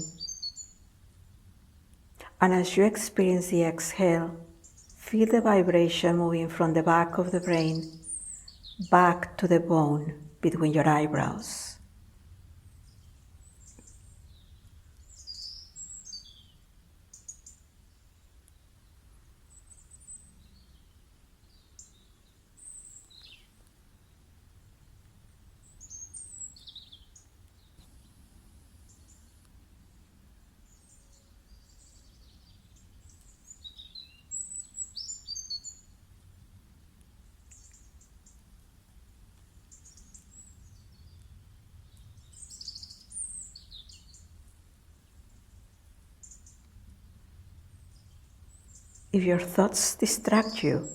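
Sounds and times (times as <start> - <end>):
birds chirping and trilling: 2.6 - 11.7, 12.9 - 16.5.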